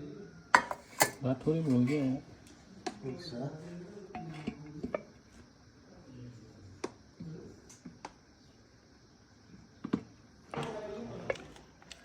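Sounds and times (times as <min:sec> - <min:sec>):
dishes and cutlery clinking: 0:00.6 - 0:02.1.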